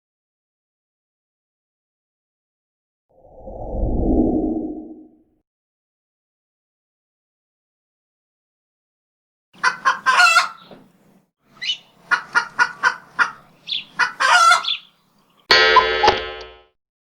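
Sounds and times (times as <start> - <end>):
short rapid bird-like calls: 11.5 - 15.0.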